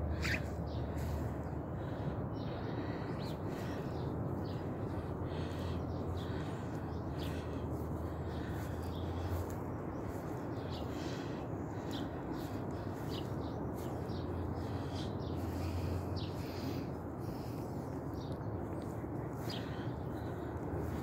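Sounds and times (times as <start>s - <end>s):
low background rumble: 0.0s - 21.0s
small bird chirping: 0.1s - 0.8s.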